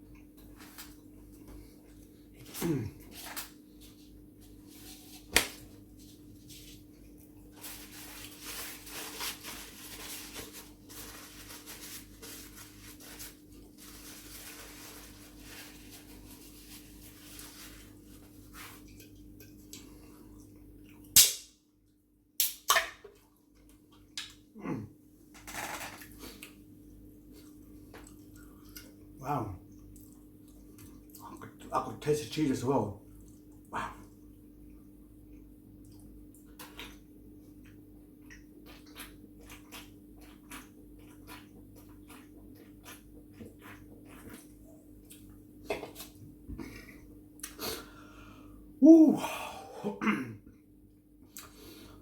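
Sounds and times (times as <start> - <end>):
chewing and crunching fried chicken: 0.0 - 21.2, 25.5 - 48.1
faint steady hum: 0.0 - 52.0
sharp loud snaps: 21.2 - 21.5.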